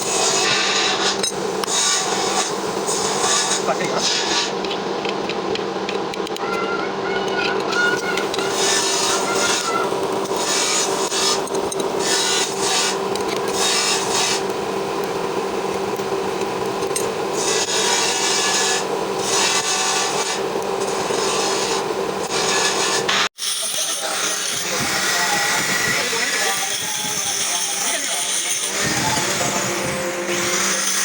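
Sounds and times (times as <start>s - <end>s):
steady machine hum: 0.0s - 23.3s
harsh metal rasping: 0.0s - 31.0s.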